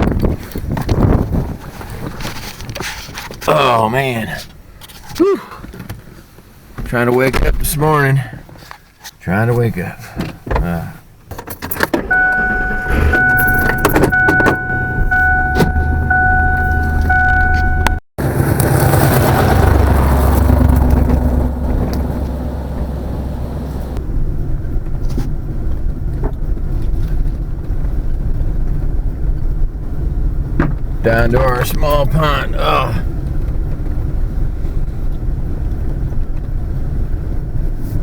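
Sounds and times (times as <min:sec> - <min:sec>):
vehicle engine rumbling: 0:10.3 - 0:38.0
electronic warning tone: 0:12.1 - 0:18.0.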